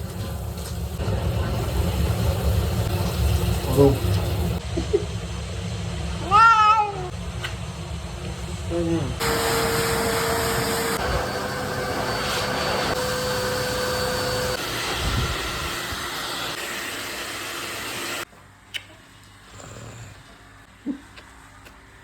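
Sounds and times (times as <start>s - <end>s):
steady whine: 9.0s - 16.6s.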